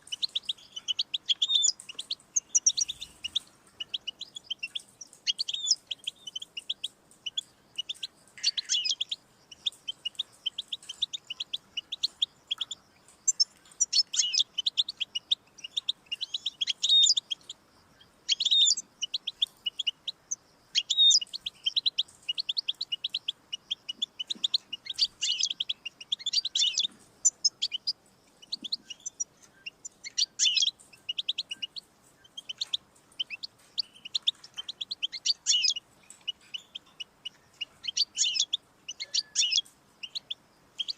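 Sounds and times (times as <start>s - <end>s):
finch twittering trills: 0.0s - 40.9s.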